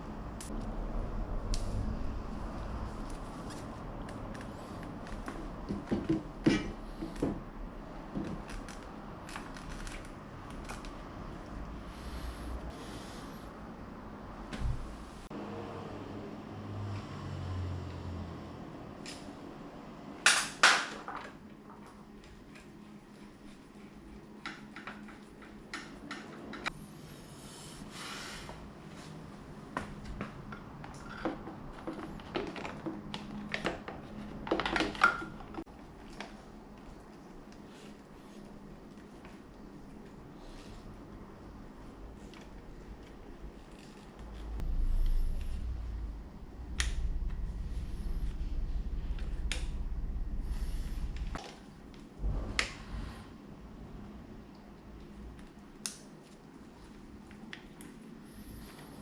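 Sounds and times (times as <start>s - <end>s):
steady low hum: 35.3s - 59.0s.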